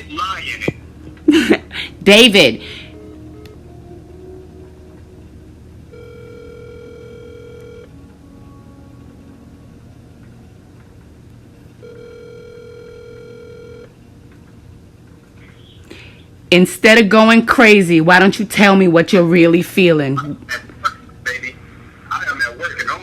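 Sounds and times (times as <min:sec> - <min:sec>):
telephone ringback tone: 0:05.9 - 0:08.0, 0:11.8 - 0:13.9.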